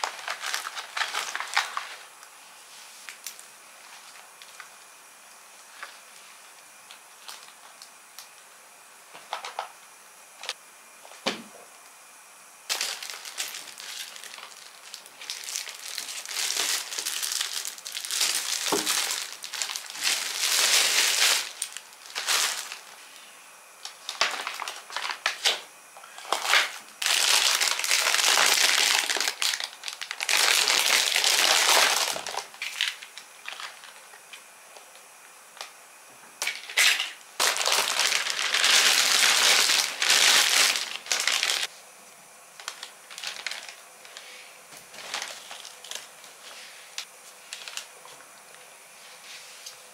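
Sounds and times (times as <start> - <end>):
packaging crinkling and rustling: 0.0 - 2.2, 6.9 - 8.3, 12.7 - 23.0, 23.9 - 25.6, 26.2 - 34.2, 36.4 - 41.7, 42.6 - 44.2, 44.8 - 48.2.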